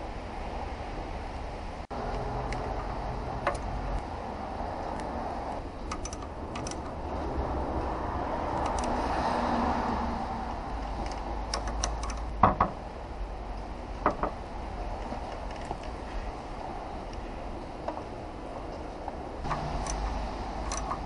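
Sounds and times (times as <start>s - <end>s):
steady background hum: 0.0s - 21.0s
tools clicking on a workbench: 5.8s - 7.0s, 11.0s - 12.8s, 19.5s - 21.0s.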